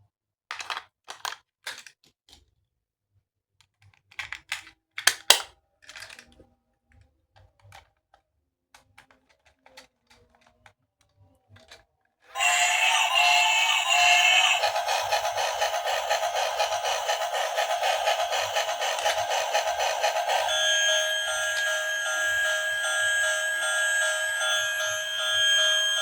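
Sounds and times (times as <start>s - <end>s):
plastic toy parts clicking: 0.5s - 2.5s, 3.6s - 11.8s, 12.4s - 20.5s
tinny electronic tune: 12.4s - 26.0s.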